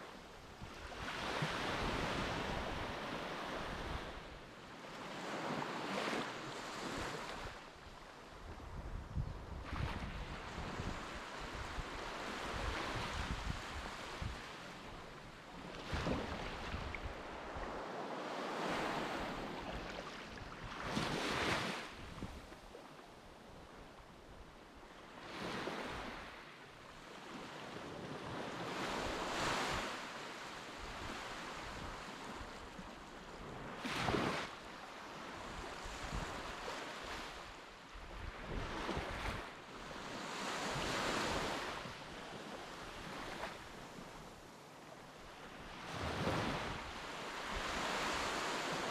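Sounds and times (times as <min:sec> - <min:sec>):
waves breaking on beach: 0:00.0 - 0:08.2, 0:09.6 - 0:22.6, 0:25.1 - 0:48.9.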